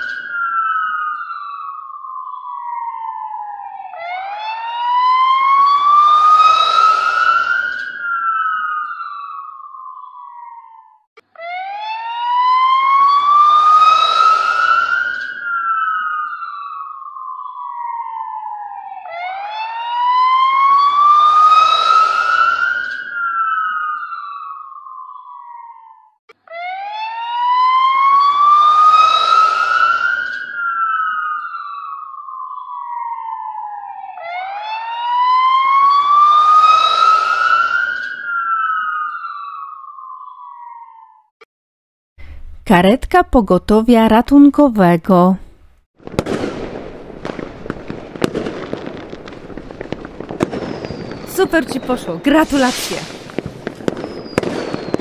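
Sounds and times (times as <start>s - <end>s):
ambulance siren wailing: 0.0s - 41.3s.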